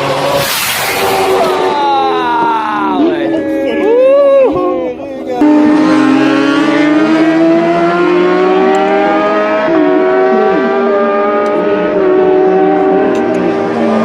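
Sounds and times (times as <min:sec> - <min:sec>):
racing motorcycle engine revving: 0:05.4 - 0:14.0.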